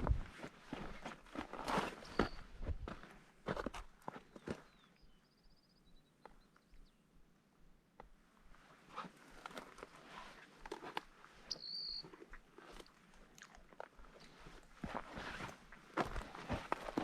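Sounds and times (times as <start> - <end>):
footsteps crunching on loose ground: 0.0 - 4.9, 9.0 - 17.0.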